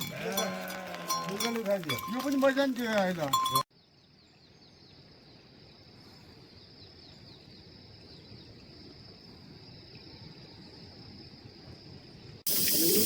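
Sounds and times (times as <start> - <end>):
insects chirring: 3.7 - 13.0.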